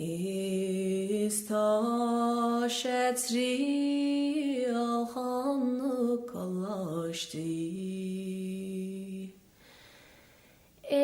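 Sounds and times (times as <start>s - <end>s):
person singing unaccompanied: 0.0s - 9.4s.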